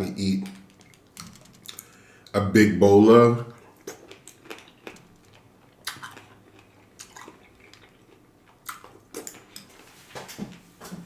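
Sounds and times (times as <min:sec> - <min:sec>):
wet eating clicks and squishes: 0:00.4 - 0:02.0, 0:03.6 - 0:09.7.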